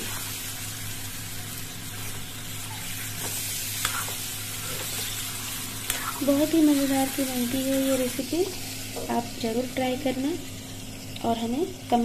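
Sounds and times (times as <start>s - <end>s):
chicken sizzling in hot oil: 0.0s - 12.0s
spatula scraping pan: 3.2s - 5.2s.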